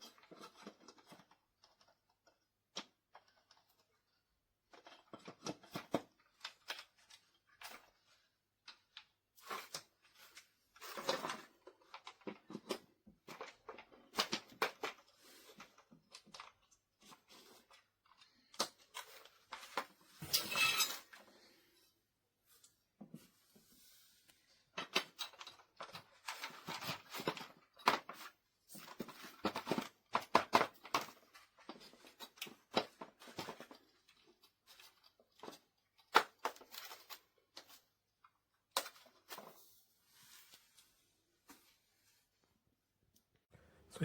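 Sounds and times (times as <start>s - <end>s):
clicks and knocks of handling: 0.0s - 21.3s, 24.3s - 39.6s
packaging rustling and scraping: 9.4s - 21.6s.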